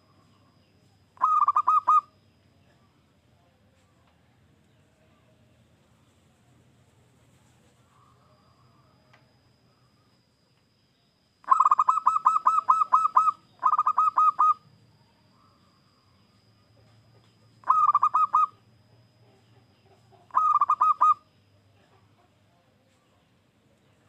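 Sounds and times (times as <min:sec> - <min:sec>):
dove cooing in staccato notes: 0:01.2 - 0:02.1, 0:11.5 - 0:14.6, 0:17.6 - 0:18.6, 0:19.6 - 0:21.2.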